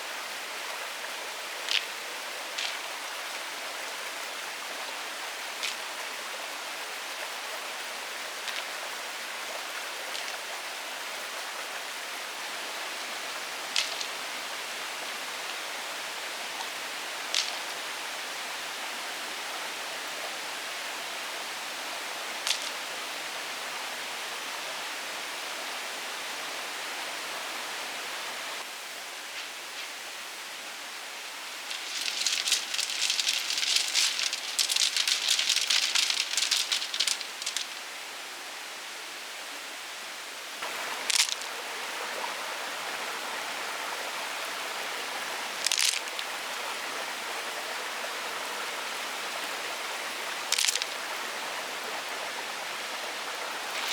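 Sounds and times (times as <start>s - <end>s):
steady rushing hiss: 0.0s - 19.8s, 20.4s - 24.6s, 28.2s - 53.9s
dense crackling rattle: 31.7s - 37.8s, 41.1s - 41.5s, 50.5s - 51.0s.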